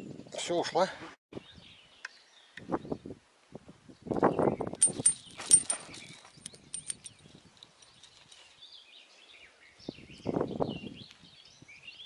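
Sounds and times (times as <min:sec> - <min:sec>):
rustling noise: 0:04.8 - 0:08.6.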